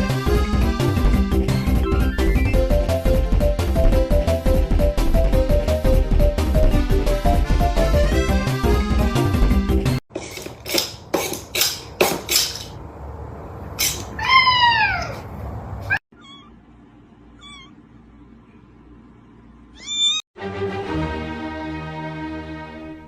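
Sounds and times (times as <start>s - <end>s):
cat meowing: 14.2s - 15.3s, 15.9s - 16.6s, 17.4s - 17.8s, 19.8s - 20.2s.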